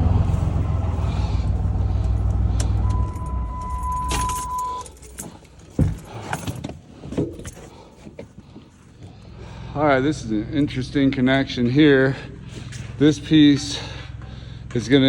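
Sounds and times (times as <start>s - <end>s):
truck engine idling: 0.0s - 15.0s
keys jangling: 2.7s - 6.7s
electronic warning chime: 2.8s - 4.9s.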